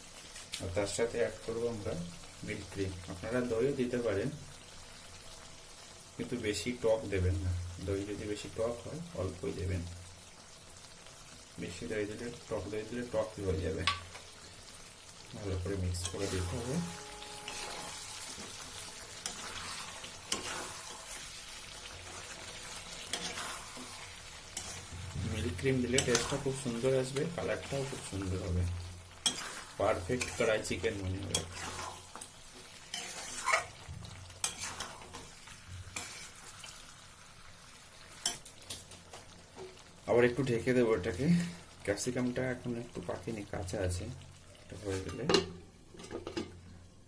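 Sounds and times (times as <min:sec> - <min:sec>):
gravy sizzling in a pan: 0:00.0 - 0:47.0
spatula scraping a pan: 0:16.0 - 0:36.9.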